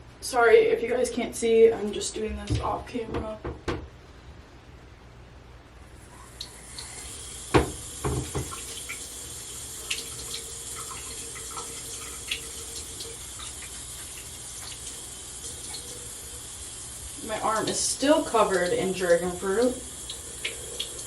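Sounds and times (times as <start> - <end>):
tap water pouring into basin: 6.3 - 21.0.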